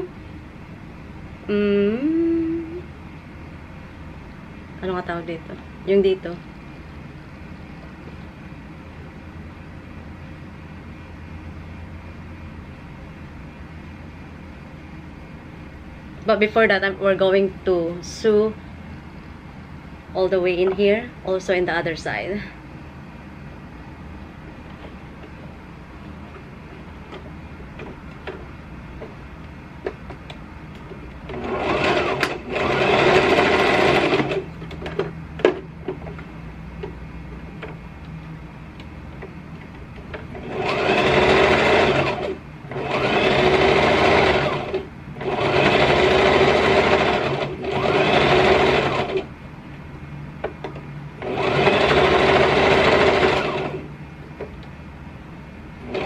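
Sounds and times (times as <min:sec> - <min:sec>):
sewing machine stitching: 0:31.3 - 0:34.5, 0:40.3 - 0:49.3, 0:51.2 - 0:53.9.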